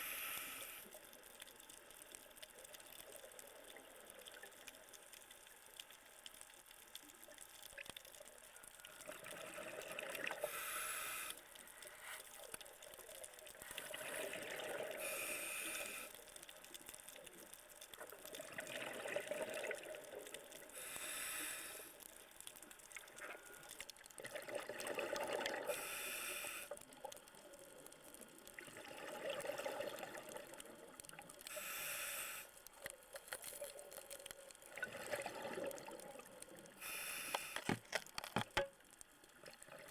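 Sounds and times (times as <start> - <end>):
regulator hiss on inhale: 0.0 - 1.0, 10.4 - 12.6, 13.6 - 16.4, 20.7 - 22.3, 25.6 - 26.9, 31.4 - 32.8, 36.7 - 37.8.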